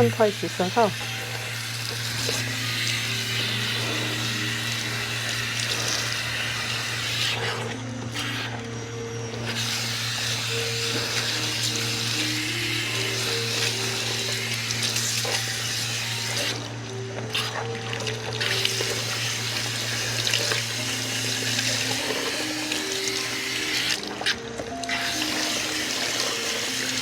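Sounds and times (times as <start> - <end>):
spray nozzle water hissing: 0.0 - 7.6.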